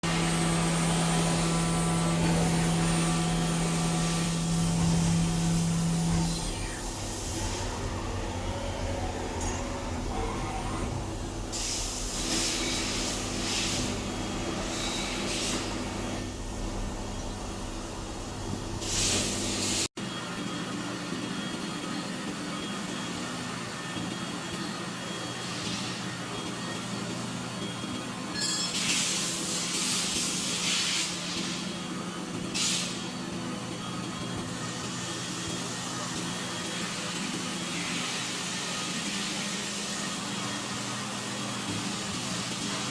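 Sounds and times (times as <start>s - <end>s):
machine humming: 0.0s - 19.9s.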